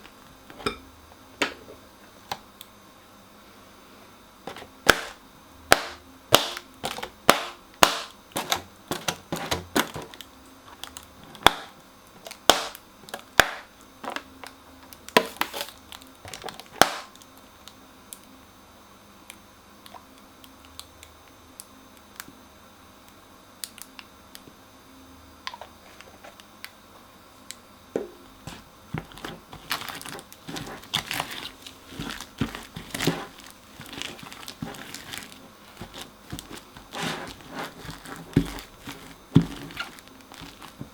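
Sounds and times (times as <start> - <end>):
crunchy slime crackling and popping: 4.5 - 14.3, 15.0 - 17.4, 28.5 - 40.9.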